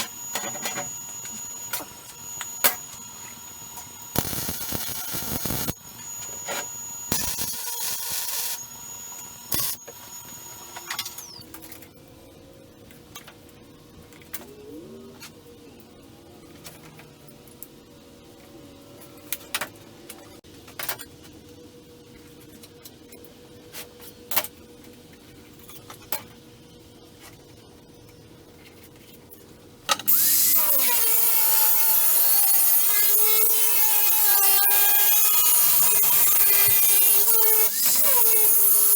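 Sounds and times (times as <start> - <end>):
power tool cutting steel: 0.0 - 11.4, 30.1 - 38.9.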